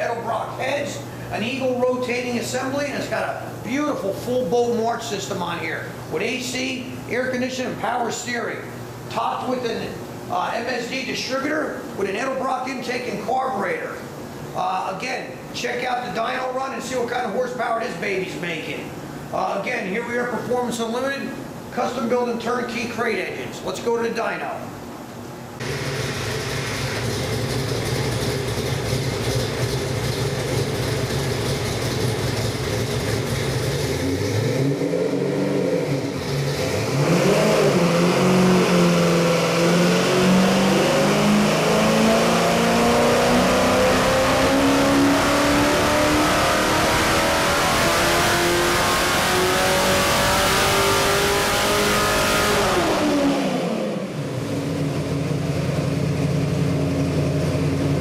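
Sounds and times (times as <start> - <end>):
engine running and revving: 25.6 - 58.0.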